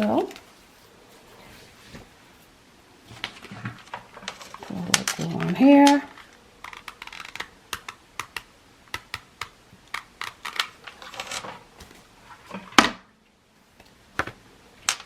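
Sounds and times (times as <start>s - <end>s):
paper and craft supplies tapping: 3.1s - 12.0s.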